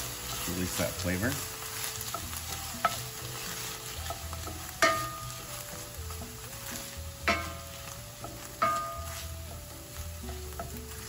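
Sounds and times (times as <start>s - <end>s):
onion sizzling in hot oil: 0.0s - 11.0s
wooden spoon stirring: 0.0s - 11.0s
spoon knocking against pan: 4.8s - 5.3s, 7.2s - 9.2s.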